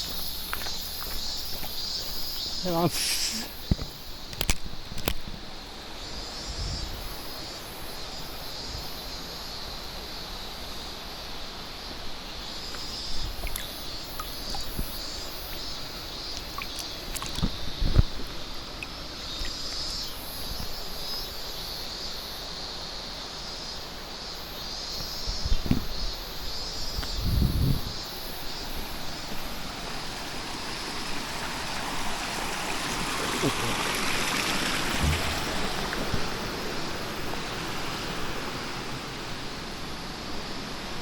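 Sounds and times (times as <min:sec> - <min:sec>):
stream water flowing: 0:00.0 - 0:24.4, 0:28.0 - 0:41.0
high insect or bird chorus: 0:00.0 - 0:41.0
low bumps: 0:34.9 - 0:36.4.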